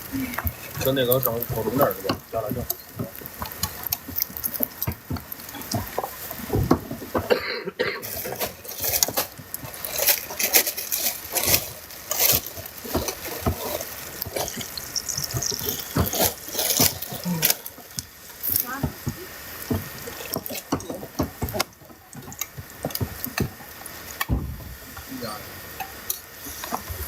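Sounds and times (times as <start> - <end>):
food frying: 0.0 - 27.0
utensils clattering: 5.5 - 18.8.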